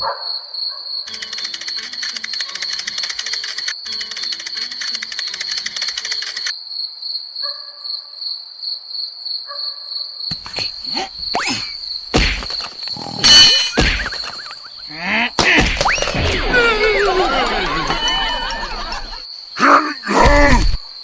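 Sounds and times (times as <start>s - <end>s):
insect-like chirping trill: 1.0s - 6.6s, 10.3s - 16.2s
sharp knocks: 12.1s - 14.3s.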